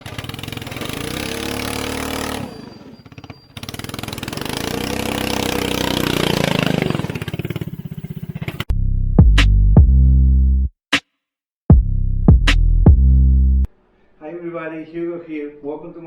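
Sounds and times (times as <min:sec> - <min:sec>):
small engine revving: 0:00.0 - 0:08.7.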